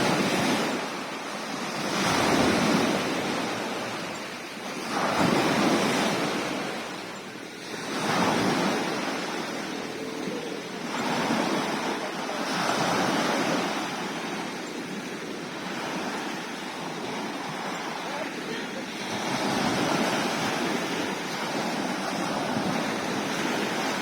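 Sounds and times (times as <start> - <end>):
sea waves washing in: 0.0 - 24.0
wind on microphone: 19.0 - 24.0.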